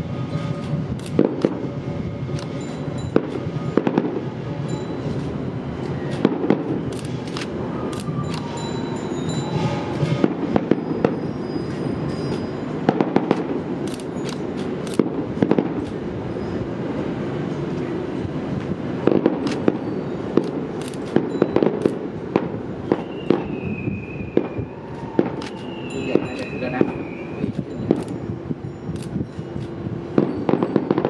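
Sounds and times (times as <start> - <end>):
fireworks cracking and banging: 0.0 - 31.0
thin high whistle: 7.6 - 12.8, 22.8 - 29.6.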